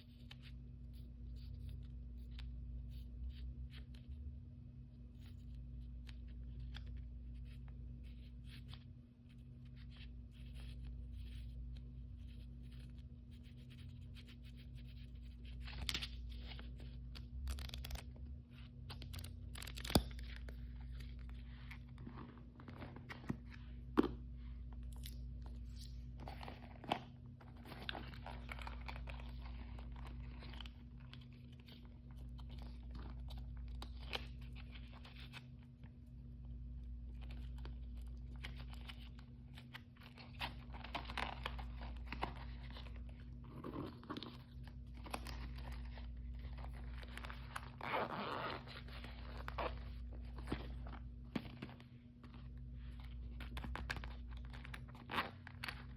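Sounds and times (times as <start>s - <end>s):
steady low hum: 0.0s - 55.9s
plastic packaging crinkling: 18.9s - 23.8s.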